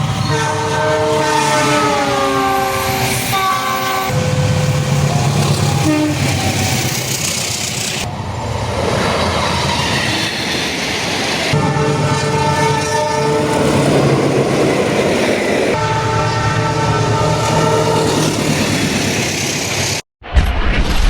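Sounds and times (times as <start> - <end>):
locomotive horn: 0.2 - 6.4, 11.6 - 13.9, 15.7 - 18.4.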